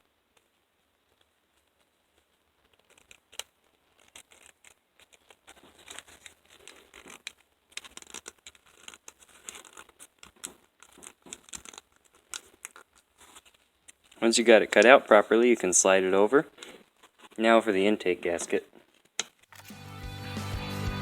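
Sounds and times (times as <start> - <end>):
paper gasket rustling and crinkling: 0.4 - 15.8, 16.5 - 17.6.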